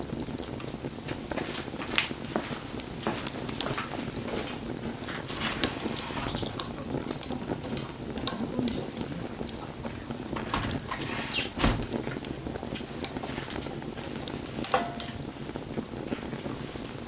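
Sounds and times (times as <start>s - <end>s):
wood fire crackling and popping: 0.0s - 17.0s
high squealing hiss: 5.3s - 7.6s, 8.7s - 12.6s.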